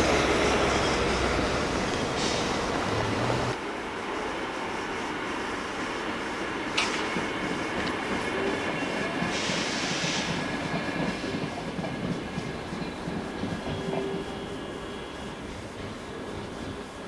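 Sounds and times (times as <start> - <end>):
train rumbling past: 0.0 - 17.0
burst of hiss: 2.0 - 3.0, 9.0 - 11.3
sharp click: 6.8 - 7.2.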